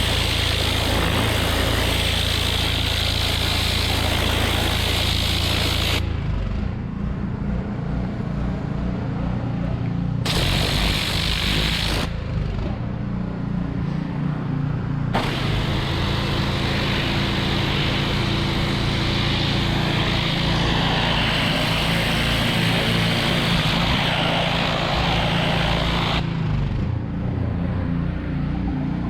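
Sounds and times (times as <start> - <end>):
high-pressure water spray hiss: 0.0 - 6.1, 10.3 - 12.2, 15.2 - 26.3
pressure washer engine running: 0.0 - 6.5, 10.2 - 12.8, 15.2 - 26.9.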